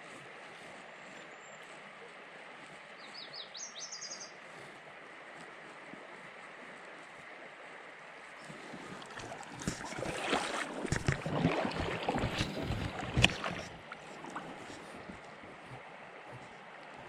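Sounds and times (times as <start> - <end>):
river flowing: 0.0 - 17.0.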